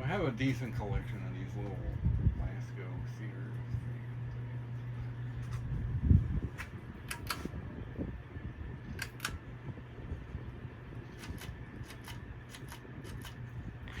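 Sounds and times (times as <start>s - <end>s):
ceiling fan humming: 0.0s - 14.0s
sharp clicks: 7.1s - 7.5s, 9.0s - 9.4s, 11.2s - 13.4s.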